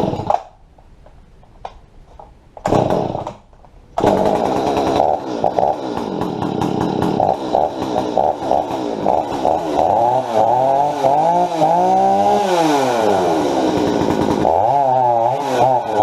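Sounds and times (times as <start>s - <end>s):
chainsaw engine running: 0.0s - 0.4s, 2.6s - 3.4s, 4.0s - 16.0s
chainsaw pull-start: 0.0s - 0.5s, 2.6s - 3.4s, 4.0s - 16.0s.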